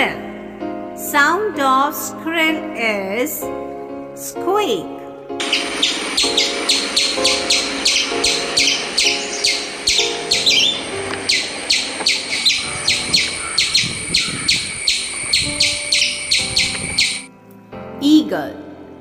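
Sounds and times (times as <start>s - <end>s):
squirrel squeaking: 5.4s - 17.3s.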